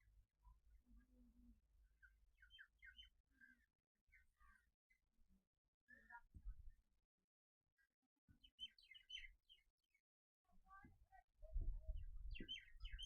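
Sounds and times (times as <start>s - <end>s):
small birds chirping: 0.9s - 5.1s, 5.9s - 6.6s, 8.3s - 10.0s, 10.6s - 13.0s.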